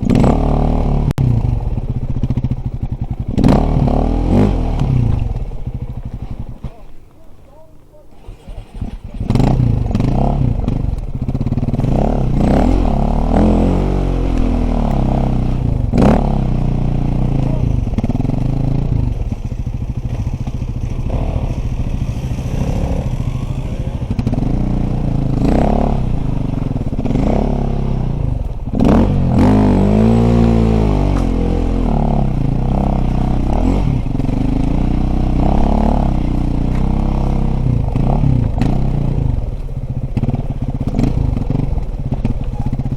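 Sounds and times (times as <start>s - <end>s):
knocks and clatter from bike: 0.0s - 0.6s, 1.2s - 7.9s, 8.9s - 13.6s, 14.3s - 29.6s, 36.6s - 42.9s
dirt bike engine revving: 0.0s - 42.9s.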